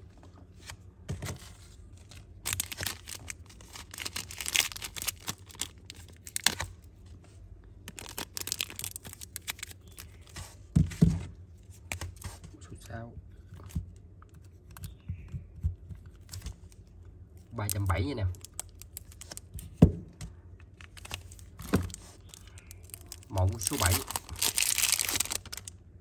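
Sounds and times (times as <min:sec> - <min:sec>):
packaging crinkling and rustling: 0:01.2 - 0:06.9, 0:07.8 - 0:10.6, 0:17.4 - 0:19.8, 0:20.7 - 0:25.8.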